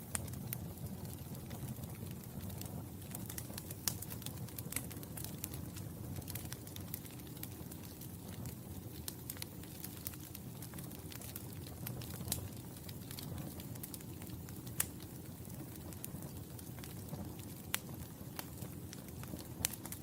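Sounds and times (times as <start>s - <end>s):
fire popping and snapping: 0.0s - 20.0s
low rumble of flames: 0.0s - 20.0s.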